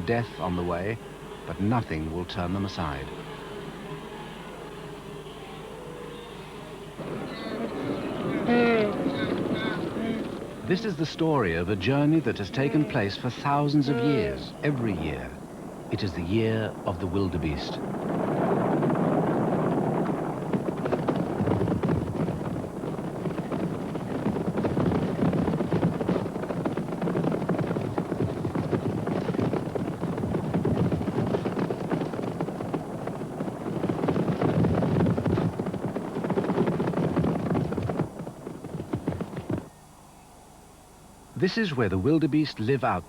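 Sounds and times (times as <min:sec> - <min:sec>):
hooves of running herd drumming: 0:00.0 - 0:40.1, 0:41.4 - 0:43.0.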